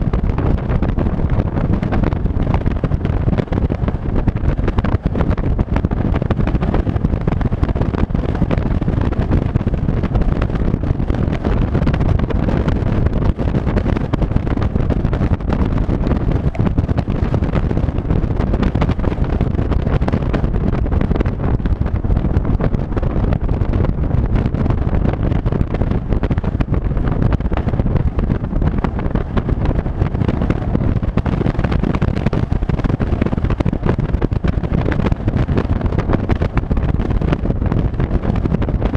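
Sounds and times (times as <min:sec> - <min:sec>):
road noise: 0:00.0 - 0:38.9
vehicle engine: 0:00.0 - 0:38.9
wind buffeting microphone: 0:00.0 - 0:38.9.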